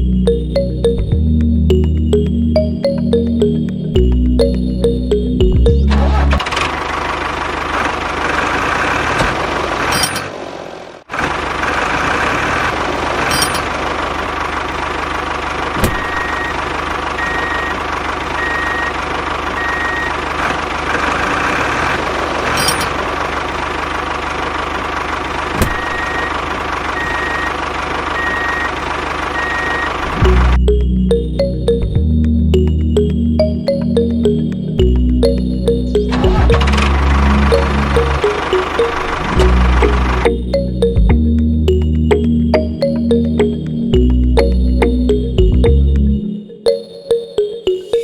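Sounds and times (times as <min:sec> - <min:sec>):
high electronic beep: 0:00.0 - 0:06.4, 0:16.0 - 0:16.6, 0:17.2 - 0:19.0, 0:25.7 - 0:26.4, 0:27.0 - 0:27.6, 0:28.2 - 0:48.0
mini tractor engine running: 0:05.9 - 0:10.2, 0:11.1 - 0:30.5, 0:36.0 - 0:41.2.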